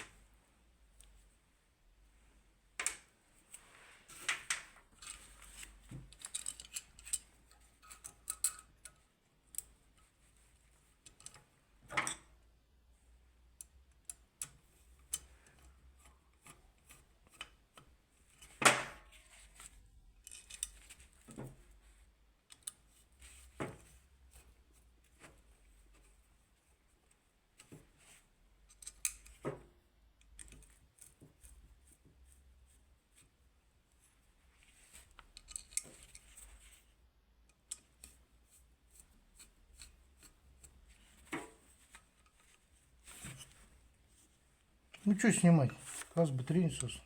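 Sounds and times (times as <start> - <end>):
hand tools and metal parts clinking: 6.1 - 9.7, 20.2 - 20.9, 35.4 - 36.5.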